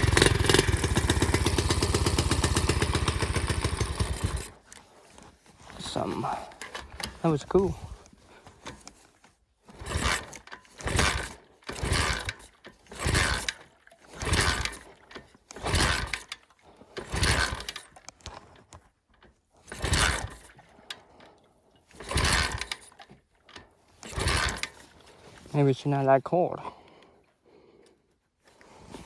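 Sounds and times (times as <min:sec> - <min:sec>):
pit bike kick-start: 0:00.0 - 0:04.9, 0:05.7 - 0:09.1, 0:09.7 - 0:18.7, 0:19.6 - 0:25.5.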